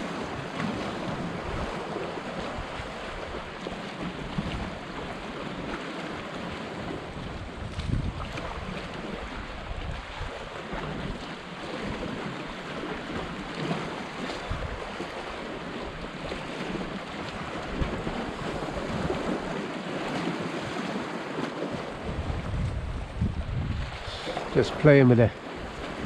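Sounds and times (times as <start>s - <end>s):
sea surf washing against rocks: 0.0s - 26.0s
wind buffeting microphone: 0.0s - 26.0s.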